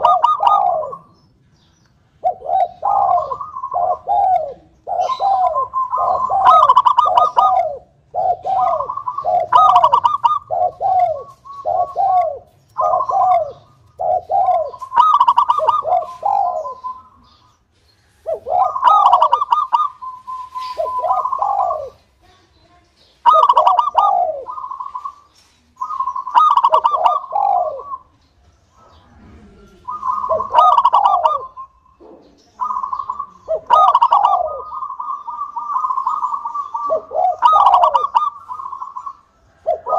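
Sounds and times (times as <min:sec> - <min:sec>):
dove cooing: 0:00.0 - 0:22.3, 0:23.1 - 0:39.9.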